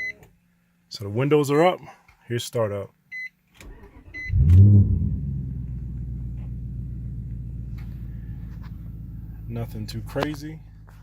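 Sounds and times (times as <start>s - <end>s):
car engine starting and idling: 3.6s - 11.0s
short beeps: 4.1s - 4.5s.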